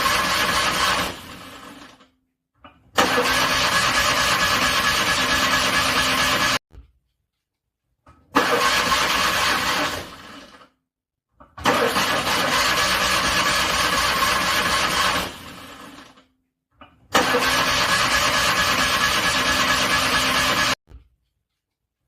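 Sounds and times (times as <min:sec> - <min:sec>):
car engine cranking: 0:00.0 - 0:01.8, 0:03.0 - 0:06.6, 0:08.4 - 0:10.4, 0:11.6 - 0:16.0, 0:17.1 - 0:20.8.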